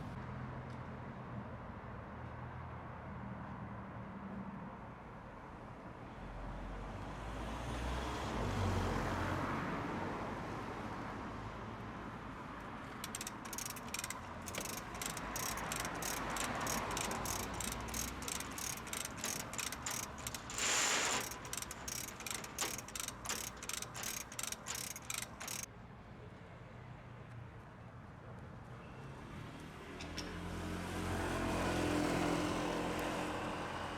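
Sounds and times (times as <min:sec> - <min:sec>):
ratchet rattle: 0:12.9 - 0:25.7
hoist ratchet clicking: 0:13.0 - 0:25.7.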